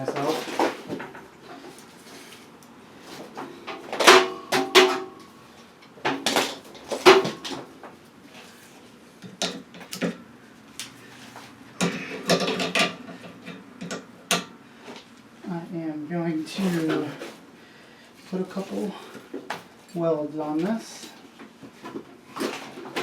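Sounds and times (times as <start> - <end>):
metal clanks and knocks: 11.8 - 14.6.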